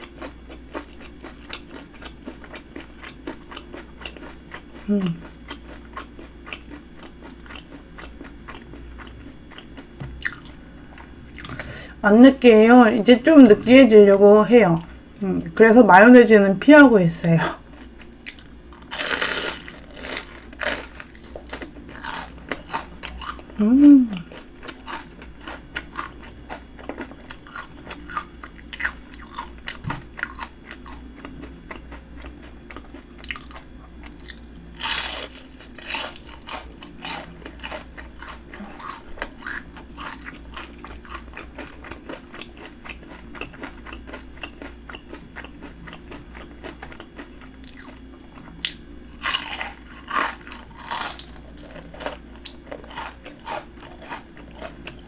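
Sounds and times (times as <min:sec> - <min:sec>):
chewing crunchy fried shrimp: 0:00.0 - 0:12.0, 0:17.4 - 0:55.0.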